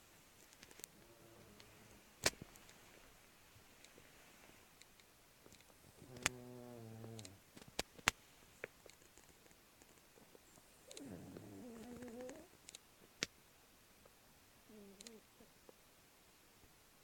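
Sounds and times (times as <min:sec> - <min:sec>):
sharp clicks: 0:04.8 - 0:06.4
dog snoring: 0:06.0 - 0:07.4, 0:10.8 - 0:12.5.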